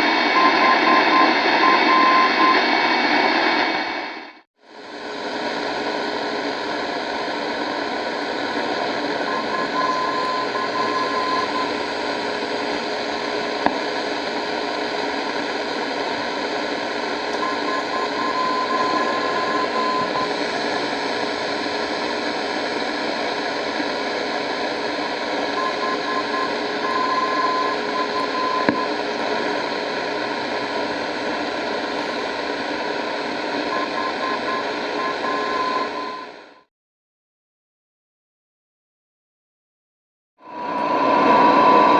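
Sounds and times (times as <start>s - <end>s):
radio static hiss: 0.0s - 36.6s.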